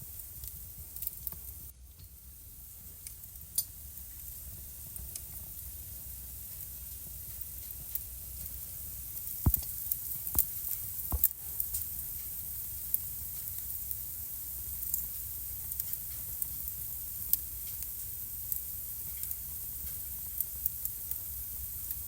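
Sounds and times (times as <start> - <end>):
fire crackling: 0.0 - 22.0
fire hissing: 0.0 - 22.0
wood fire pops: 6.4 - 22.0.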